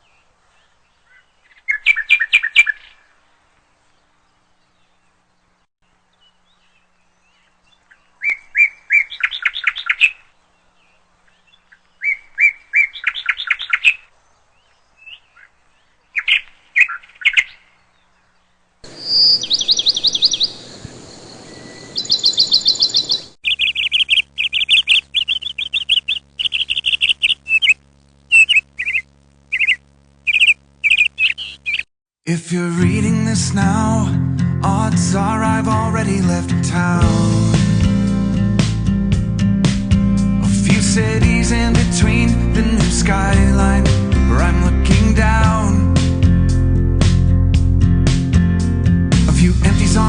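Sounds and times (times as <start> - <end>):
small birds chirping and trilling: 0.0 - 31.9.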